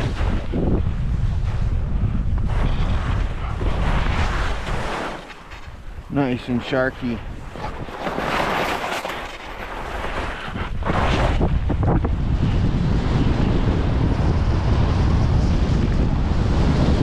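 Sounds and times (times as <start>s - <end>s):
wind buffeting microphone: 0.0s - 17.0s
skis scraping over snow: 2.4s - 13.5s.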